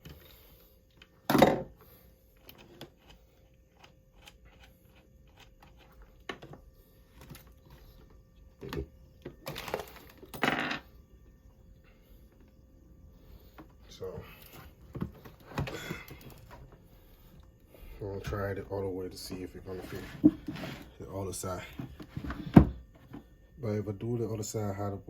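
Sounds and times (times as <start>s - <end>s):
knocks and clatters of parts: 1.2s - 1.8s, 8.6s - 10.9s.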